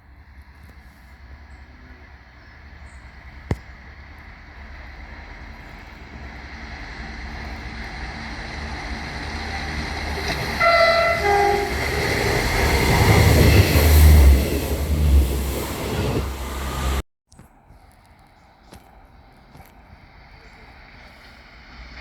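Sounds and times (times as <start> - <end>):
train rumble passing: 0.0 - 17.0, 18.3 - 22.0
two-tone train horn: 10.1 - 14.4.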